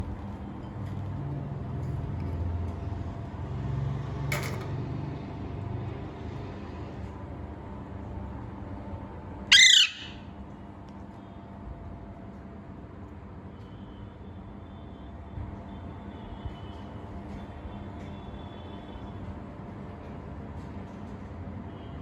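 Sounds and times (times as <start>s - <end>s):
parrot squawk: 9.5s - 10.3s.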